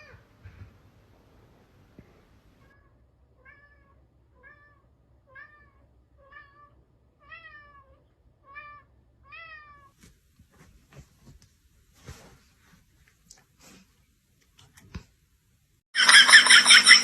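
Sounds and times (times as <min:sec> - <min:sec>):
cat meowing: 0:02.6 - 0:10.0.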